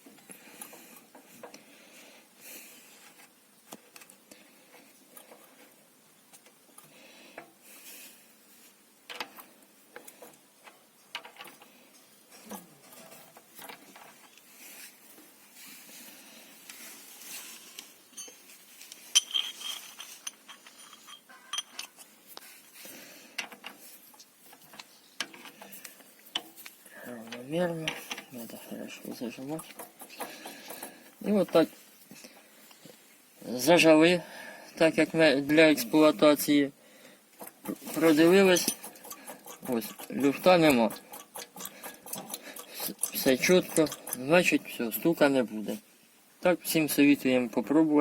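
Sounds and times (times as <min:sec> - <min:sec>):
hand tools clinking on metal: 0:18.1 - 0:22.1, 0:37.4 - 0:44.7.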